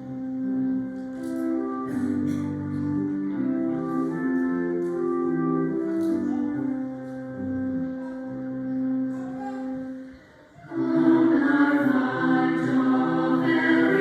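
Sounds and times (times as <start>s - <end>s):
organ holding chords: 0.0s - 14.0s
choir singing: 10.6s - 14.0s.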